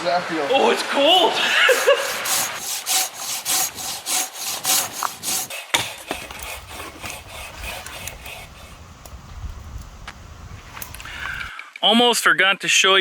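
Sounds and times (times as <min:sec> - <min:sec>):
hand saw cutting wood: 0:01.0 - 0:08.8.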